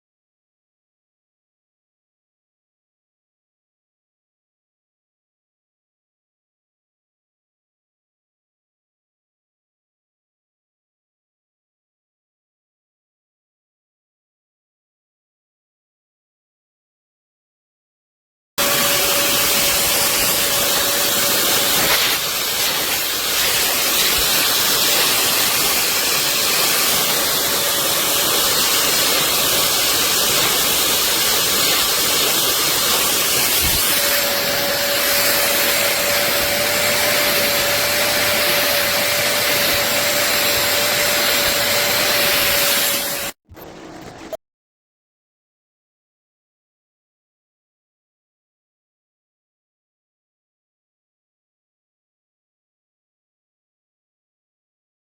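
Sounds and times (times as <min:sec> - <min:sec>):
suction motor whining: 0:18.6 - 0:44.4.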